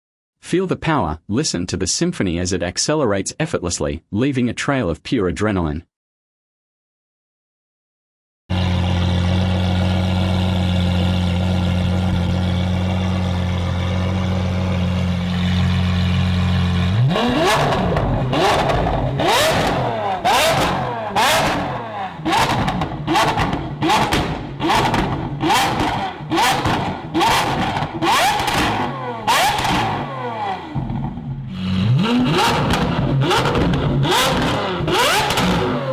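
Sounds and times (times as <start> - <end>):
car engine idling and revving: 8.5 - 35.9
sharp exhaust cracks: 17.0 - 30.1.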